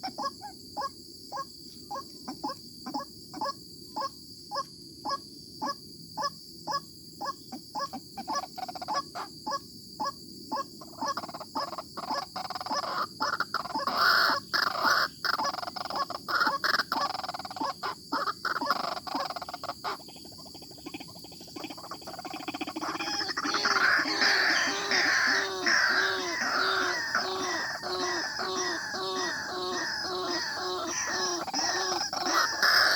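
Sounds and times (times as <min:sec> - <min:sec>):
waterhen calling: 0:20.8 - 0:32.9.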